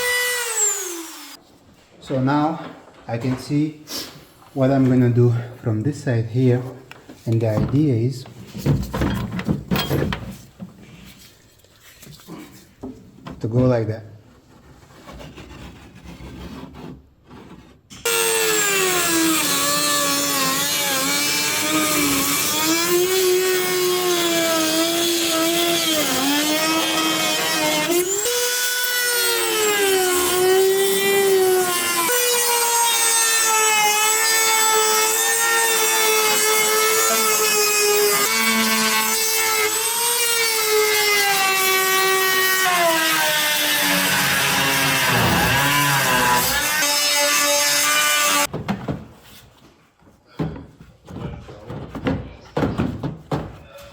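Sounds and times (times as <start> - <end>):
power tool whining while cutting: 0.0 - 1.4, 18.0 - 48.5
faint handling sounds: 10.4 - 12.8.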